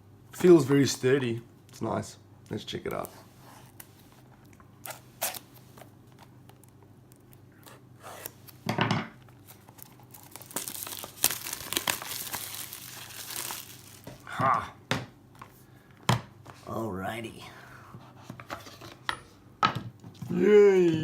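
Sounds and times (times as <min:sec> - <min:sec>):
packaging crinkling and tearing: 0:04.8 - 0:08.6, 0:09.3 - 0:14.3
packaging clicks: 0:09.5 - 0:14.1.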